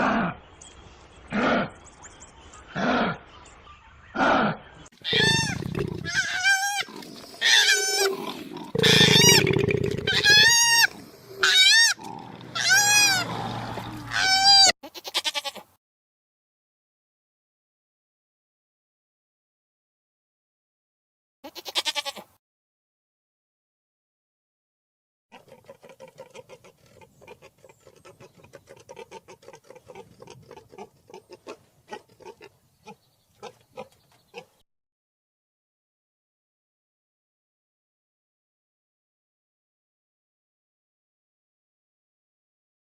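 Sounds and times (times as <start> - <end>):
short animal calls: 4.2 - 8.1
animal squealing calls: 4.2 - 15.6.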